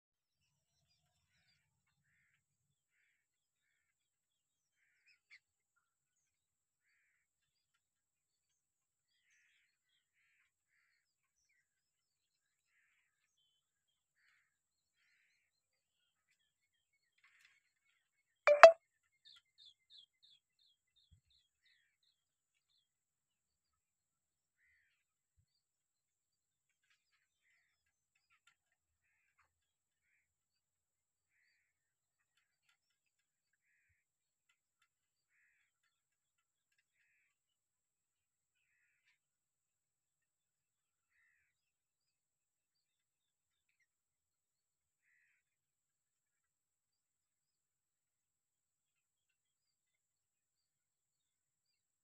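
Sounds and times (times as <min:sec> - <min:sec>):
short high bird chirps: 0:18.5 - 0:18.8.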